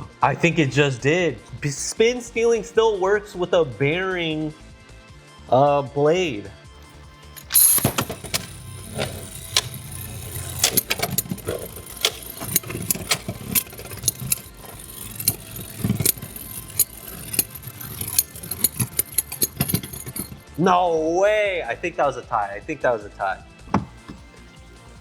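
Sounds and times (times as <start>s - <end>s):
spinning tops clacking: 6.8s - 20.4s.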